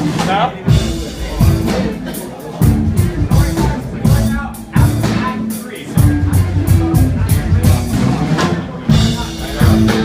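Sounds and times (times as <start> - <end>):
heavy drum hits: 0.0 - 5.4
bass guitar: 0.0 - 10.0
live rock band playing: 0.0 - 10.0.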